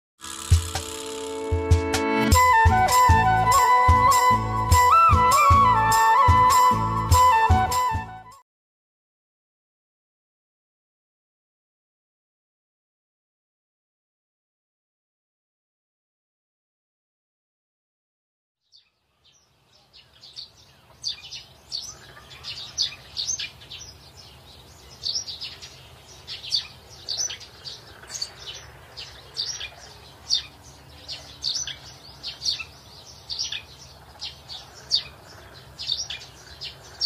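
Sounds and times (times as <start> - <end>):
small birds chirping: 18.6 - 37.0.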